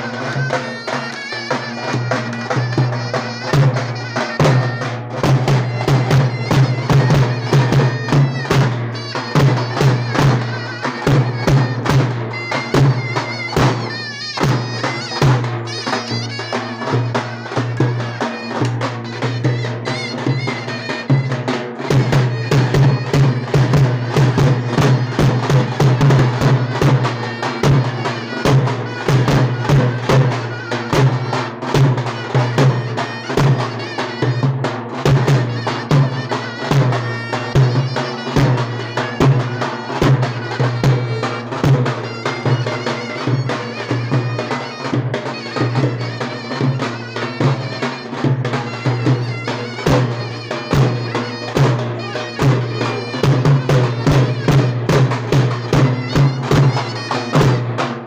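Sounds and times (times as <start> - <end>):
rapid drum strokes: 0.0 - 58.0
reedy zurna melody: 0.0 - 58.0.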